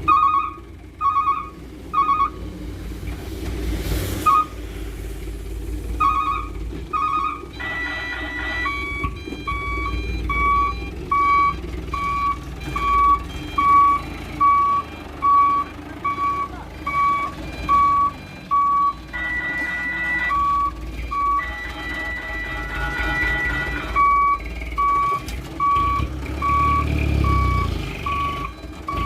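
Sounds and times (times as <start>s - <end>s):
diesel engine running: 0.0s - 29.0s
reversing alarm beeps: 0.1s - 2.4s, 6.0s - 29.0s.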